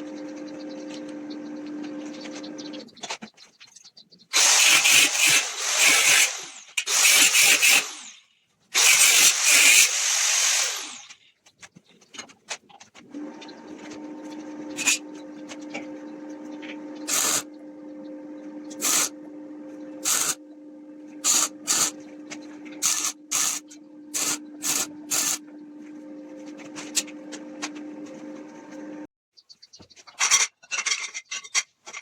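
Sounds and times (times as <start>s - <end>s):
steady machine hum: 0.0s - 2.9s, 13.2s - 29.1s
short loud hissing bursts: 4.4s - 8.2s.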